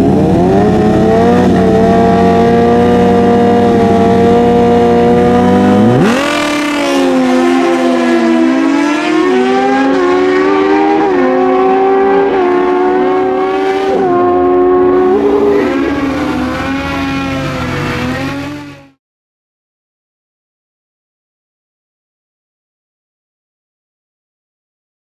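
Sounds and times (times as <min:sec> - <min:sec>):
drag motorcycles shifting gears: 0:00.0 - 0:18.9.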